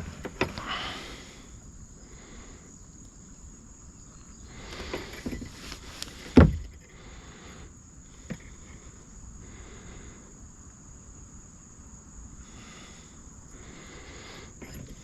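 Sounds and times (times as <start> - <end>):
insects droning: 0.0 - 15.0
loud thump: 6.3 - 6.8.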